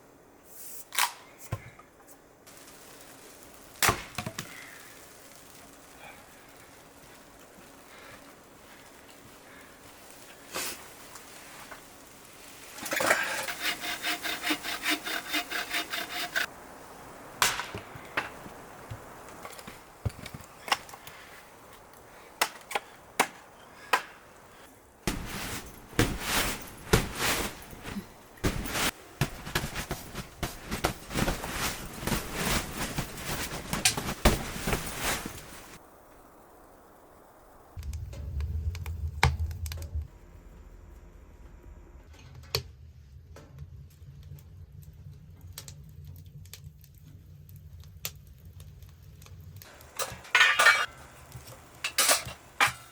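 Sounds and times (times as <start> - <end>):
hand saw cutting wood: 12.9 - 16.5.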